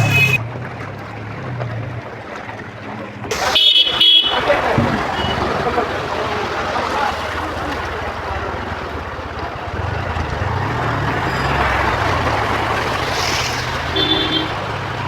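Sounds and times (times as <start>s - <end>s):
car horn toot: 0.0s - 0.4s, 3.3s - 5.5s, 13.9s - 14.7s
vehicle engine hum: 0.0s - 15.0s.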